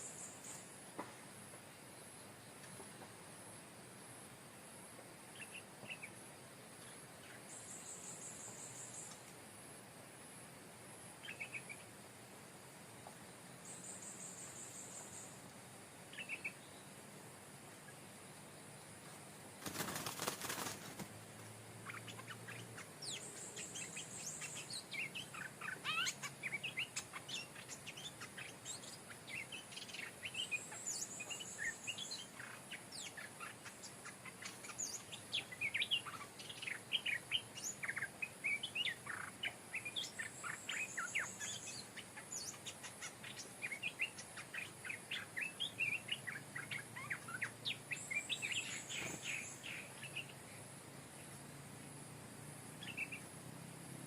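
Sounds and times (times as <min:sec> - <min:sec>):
faint steady high hiss: 0:00.0 - 0:54.0
bulbuls singing: 0:21.8 - 0:51.4, 0:52.8 - 0:53.3.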